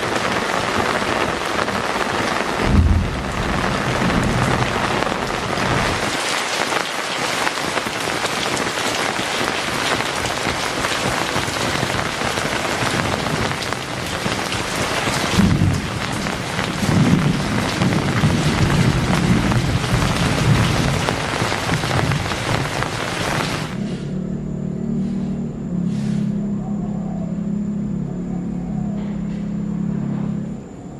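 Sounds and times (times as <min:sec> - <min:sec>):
heavy rain falling: 0:00.0 - 0:23.8
brief low rumbles: 0:02.6 - 0:06.0.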